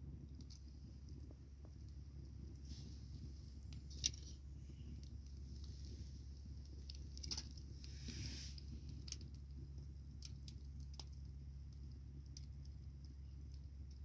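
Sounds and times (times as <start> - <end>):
low fire rumble: 0.0 - 14.0
wood bonfire crackling: 0.0 - 14.0
short hiss: 7.9 - 8.6.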